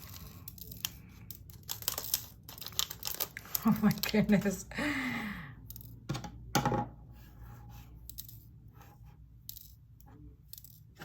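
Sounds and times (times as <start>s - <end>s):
plastic beads clattering in container: 0.0s - 4.2s.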